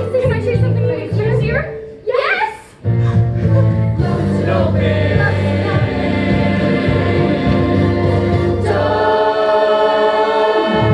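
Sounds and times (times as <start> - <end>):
choir singing held chords: 3.4 - 10.9.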